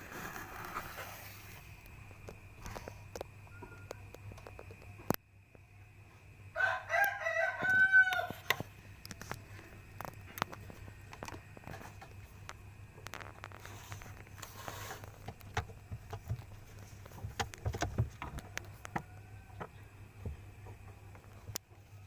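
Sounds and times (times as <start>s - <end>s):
light taps and scratches: 8.3s - 21.9s.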